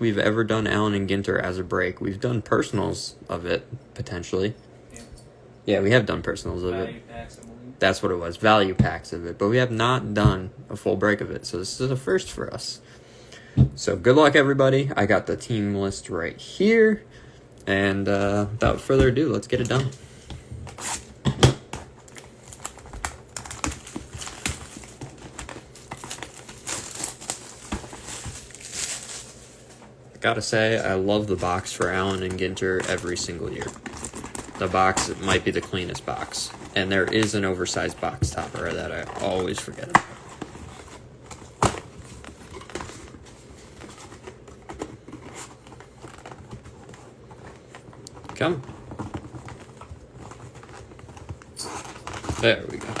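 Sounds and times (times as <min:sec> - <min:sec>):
wrapper crinkling: 0:21.9 - 0:30.0, 0:30.6 - 0:53.0.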